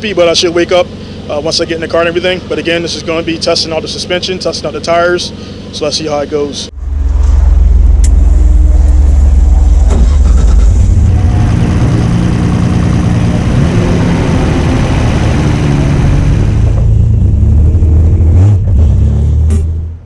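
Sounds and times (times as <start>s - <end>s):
car engine revving: 6.7s - 20.0s.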